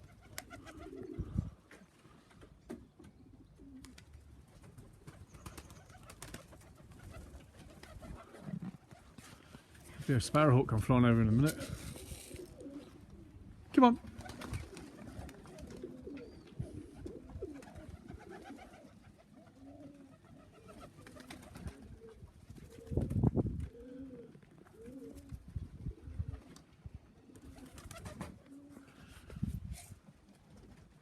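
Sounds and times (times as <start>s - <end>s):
pigeons cooing: 0.0s - 2.2s, 3.0s - 9.6s, 11.7s - 29.5s.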